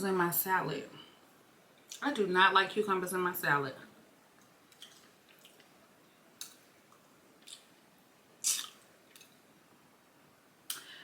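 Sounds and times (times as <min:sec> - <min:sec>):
person chewing food: 0:04.7 - 0:05.7.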